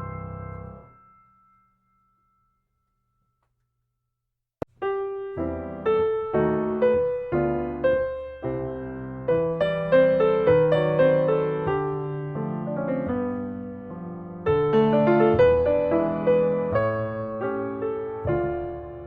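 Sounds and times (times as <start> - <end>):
piano music: 0.0 - 1.6, 4.7 - 19.0.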